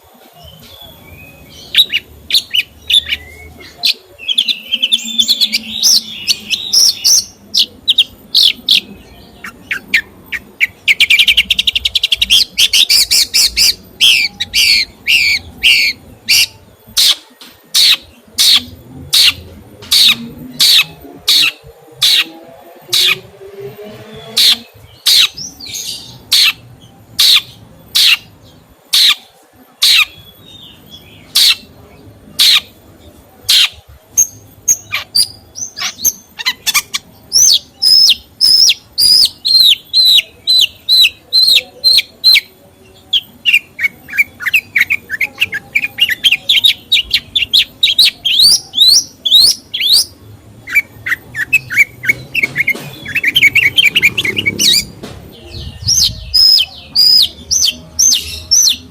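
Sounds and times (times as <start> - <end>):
songbird singing: 0.0 - 58.9.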